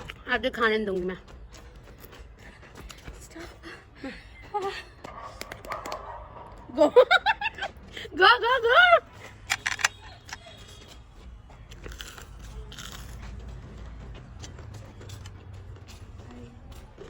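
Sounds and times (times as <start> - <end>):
person biting and chewing food: 11.7 - 13.2.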